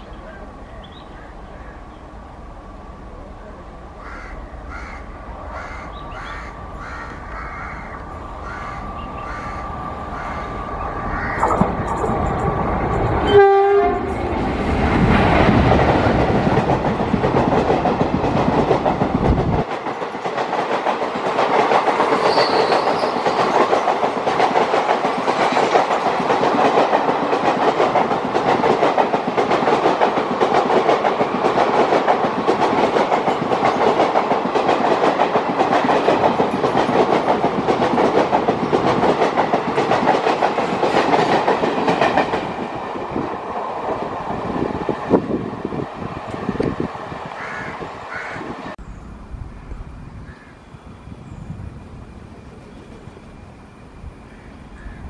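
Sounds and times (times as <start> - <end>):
train coaches clattering over rails: 10.5 - 47.3.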